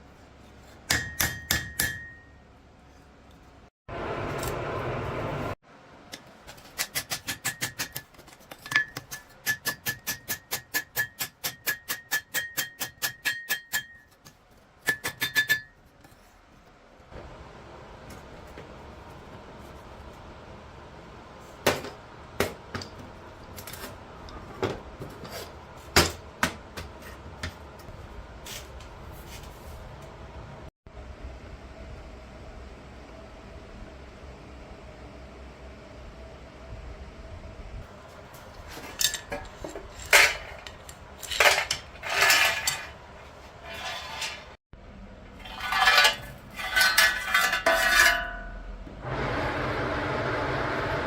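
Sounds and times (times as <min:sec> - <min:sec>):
hammer striking steel on anvil: 0:00.9 - 0:02.4, 0:06.8 - 0:08.0, 0:08.7 - 0:15.8.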